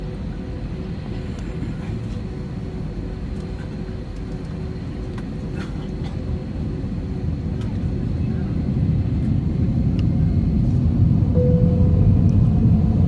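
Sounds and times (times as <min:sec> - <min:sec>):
jet engines rumbling: 0:00.0 - 0:13.0
faint steady hums: 0:09.2 - 0:13.0.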